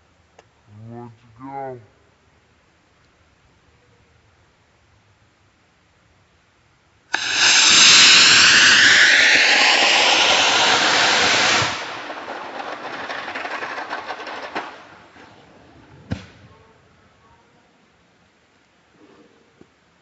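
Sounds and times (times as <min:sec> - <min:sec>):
sharp pop: 0:07.1 - 0:14.7
rocket motor rushing hiss: 0:07.1 - 0:15.5.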